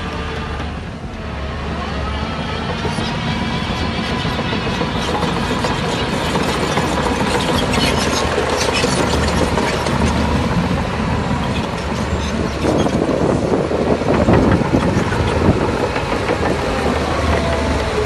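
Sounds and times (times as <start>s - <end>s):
heavy diesel machinery running: 0.0s - 18.0s
metallic clatter and scraping: 4.9s - 10.5s.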